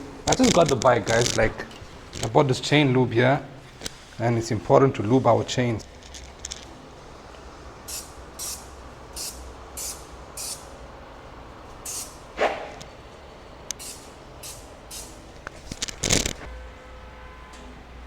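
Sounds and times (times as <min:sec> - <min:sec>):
aerosol spray hissing bursts: 0:07.8 - 0:10.8, 0:11.8 - 0:12.4, 0:13.7 - 0:15.4.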